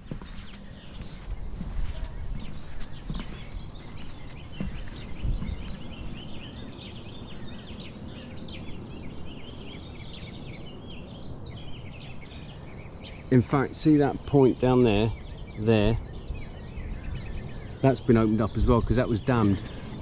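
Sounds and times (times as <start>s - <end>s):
soft thumps: 0.0s - 5.8s
small birds singing: 0.0s - 20.0s.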